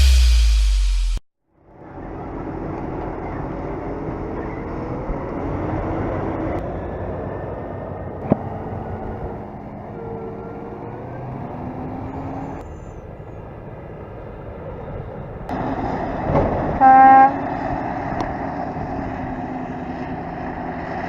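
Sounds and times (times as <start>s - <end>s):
heavy farm vehicle engines: 1.6s - 21.0s
loud horn blast: 16.7s - 17.6s.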